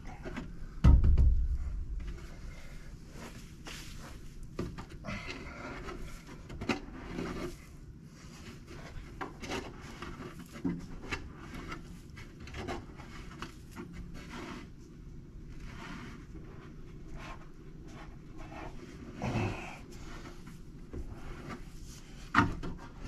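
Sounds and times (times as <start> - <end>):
sharp knocks: 0.8 - 1.8.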